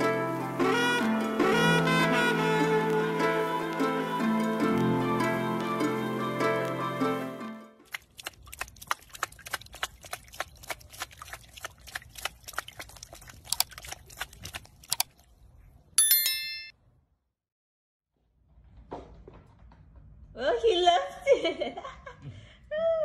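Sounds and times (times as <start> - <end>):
notification bell ding: 16.0 - 16.7.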